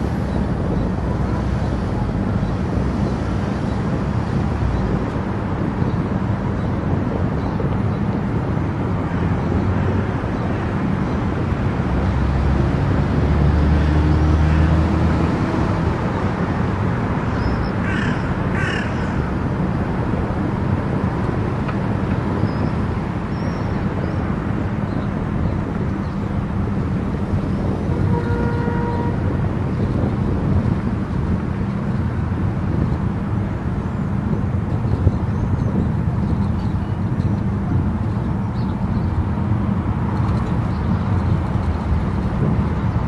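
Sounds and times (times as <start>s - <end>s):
car road and wind noise: 0.0s - 43.0s
harsh caw-like calls: 17.8s - 19.3s.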